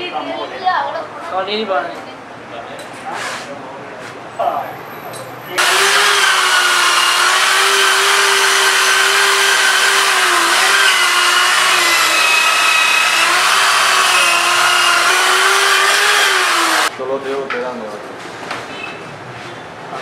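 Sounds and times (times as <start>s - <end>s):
power tool whining under load: 5.6s - 16.9s.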